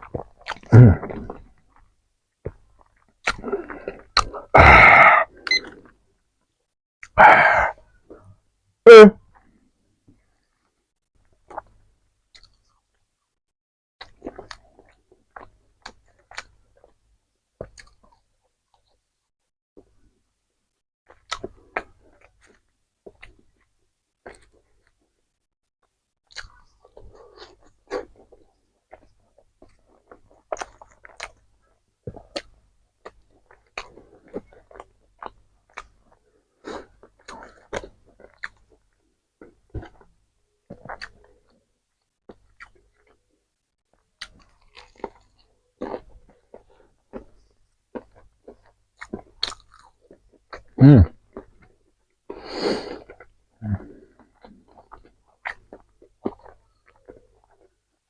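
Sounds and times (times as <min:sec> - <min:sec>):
wet mouth sounds: 0:00.0 - 0:01.8, 0:02.5 - 0:05.9, 0:40.7 - 0:41.3, 0:52.4 - 0:57.7
person chewing crunchy food: 0:00.0 - 0:01.9, 0:14.0 - 0:17.0, 0:26.3 - 0:41.6, 0:42.3 - 0:43.3, 0:44.0 - 0:58.0.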